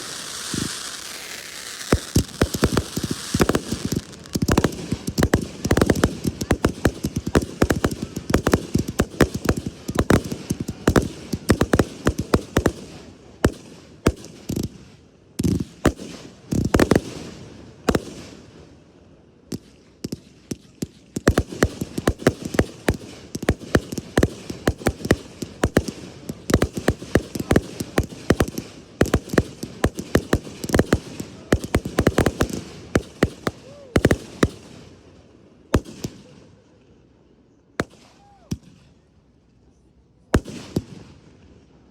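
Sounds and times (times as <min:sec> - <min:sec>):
fireworks bangs and crackles: 0:00.0 - 0:18.8, 0:19.5 - 0:36.8, 0:37.7 - 0:39.0, 0:40.3 - 0:41.9.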